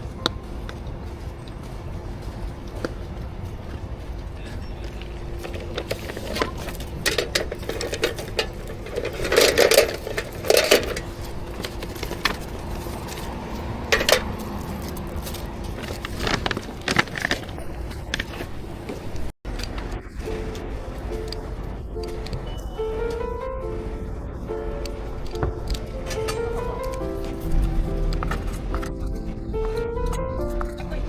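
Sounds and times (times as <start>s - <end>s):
cups and utensils clinking: 5.4s - 18.1s.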